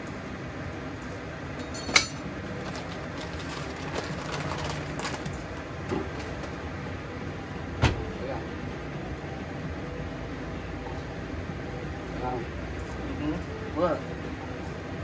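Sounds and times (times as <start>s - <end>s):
steady low hum: 0.0s - 15.0s
kitchenware clinking: 1.6s - 3.6s.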